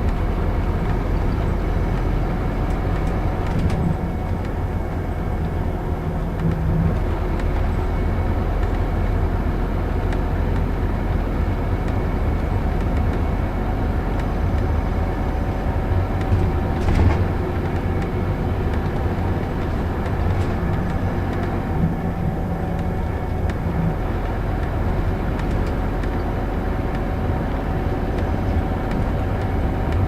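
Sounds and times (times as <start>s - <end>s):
bus diesel engine drone: 0.0s - 30.0s
road noise: 0.0s - 30.0s.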